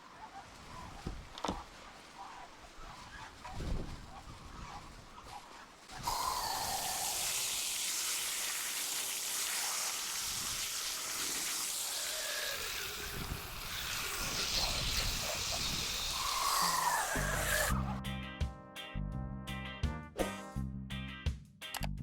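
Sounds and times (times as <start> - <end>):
running water rushing: 5.7 - 17.8.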